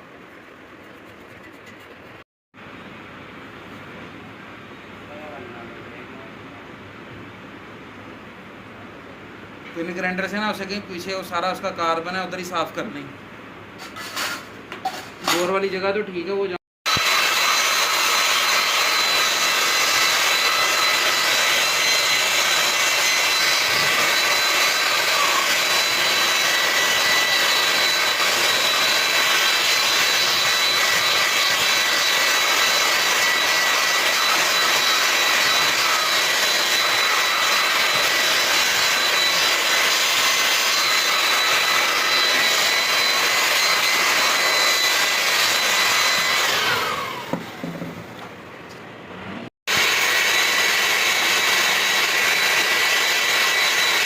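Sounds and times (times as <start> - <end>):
die grinder whining: 16.9 - 47.9, 49.7 - 54.0.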